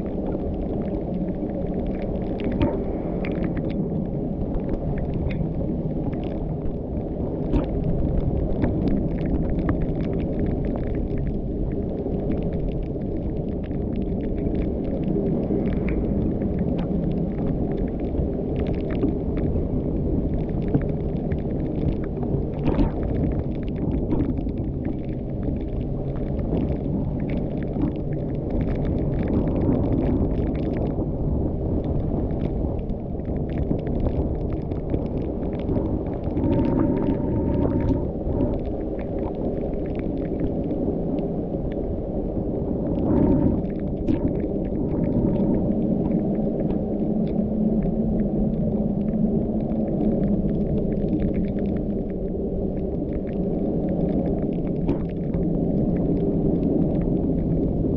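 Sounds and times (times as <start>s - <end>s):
small clicks and knocks: 20.5s - 25.1s.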